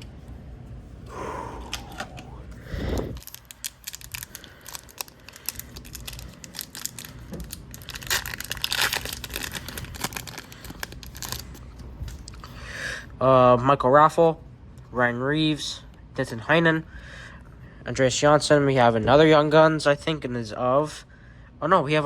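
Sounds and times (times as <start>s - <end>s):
foil wrapper tearing and crinkling: 3.1s - 12.4s.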